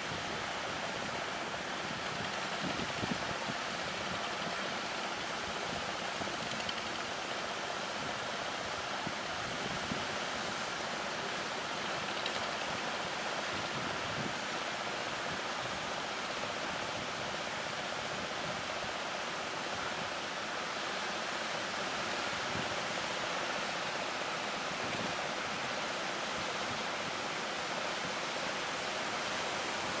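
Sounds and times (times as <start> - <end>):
strong wind: 0.0 - 4.7, 7.9 - 10.8, 12.6 - 15.9
sea surf rushing: 0.0 - 30.0.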